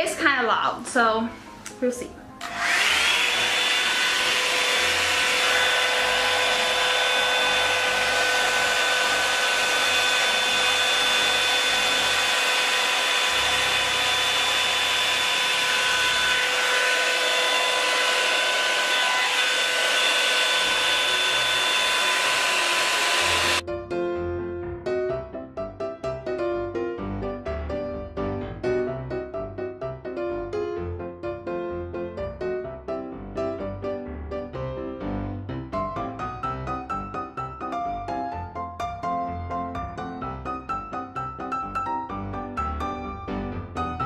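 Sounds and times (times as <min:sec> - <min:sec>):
hair dryer running: 0:02.4 - 0:23.6.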